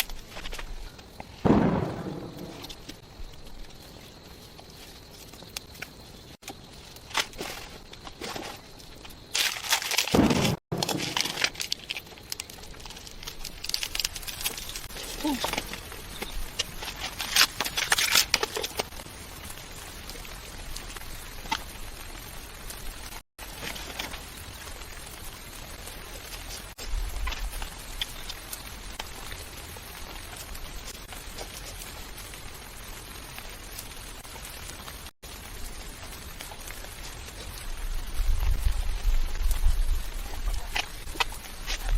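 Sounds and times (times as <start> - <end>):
crackling and rustling: 0.0 - 41.9
steady rain: 10.1 - 41.9.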